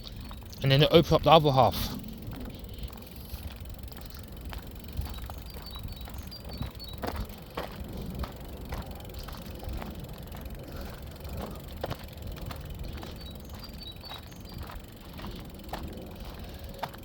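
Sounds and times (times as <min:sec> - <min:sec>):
bird chirping: 0:00.0 - 0:07.7, 0:11.3 - 0:15.5
footsteps on a path: 0:00.0 - 0:17.0
wind on microphone: 0:01.8 - 0:17.0.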